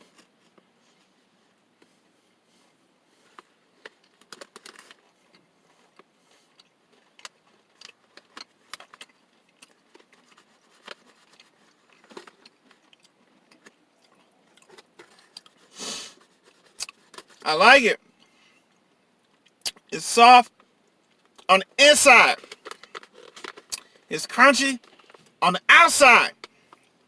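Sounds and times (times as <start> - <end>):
chewing crunches: 6.5 - 15.6.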